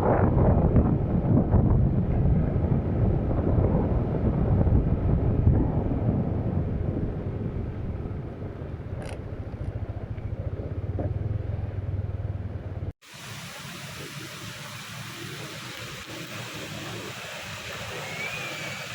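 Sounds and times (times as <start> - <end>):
wind buffeting microphone: 0.0 - 12.9
motorcycle engine rumble: 0.0 - 18.9
steady even hiss: 13.0 - 18.9.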